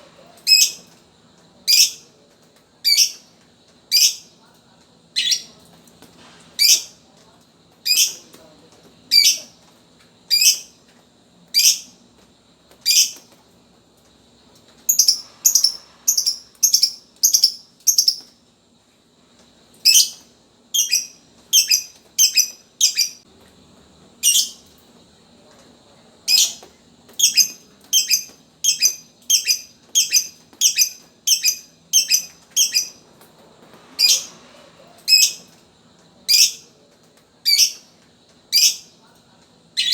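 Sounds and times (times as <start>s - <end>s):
lovebird chirping: 14.9s - 18.3s, 20.8s - 23.2s, 24.2s - 24.6s, 27.2s - 33.0s.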